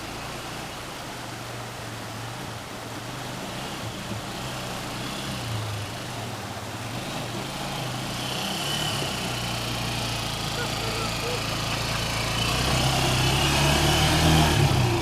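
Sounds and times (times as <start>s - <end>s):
small engine running: 7.0s - 15.0s.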